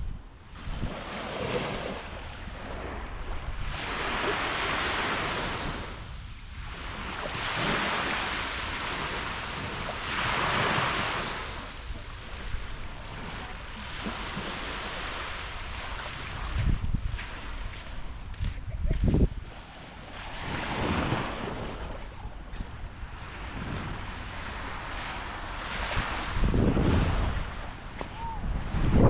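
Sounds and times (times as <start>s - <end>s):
wind rumble on microphone: 0.0s - 29.0s
small waves breaking on beach: 0.4s - 29.0s.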